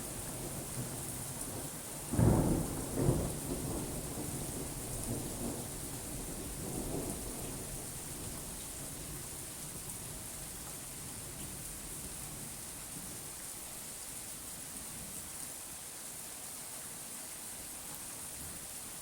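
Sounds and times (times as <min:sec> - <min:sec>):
steady rain hiss: 0:00.0 - 0:19.0
thunder clap and rumble: 0:02.1 - 0:08.4.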